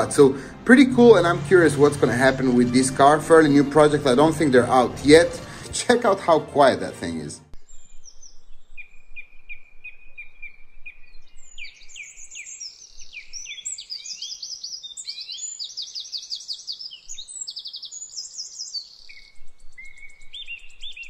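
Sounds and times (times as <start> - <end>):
songbirds chirping and trilling: 7.5 - 21.0.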